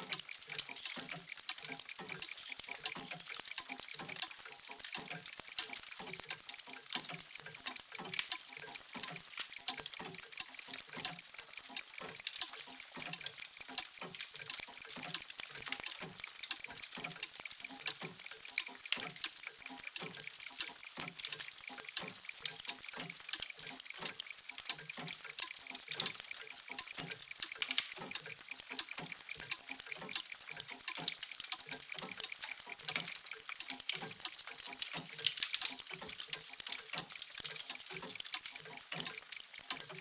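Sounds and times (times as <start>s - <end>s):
many clocks ticking: 0.0s - 40.0s.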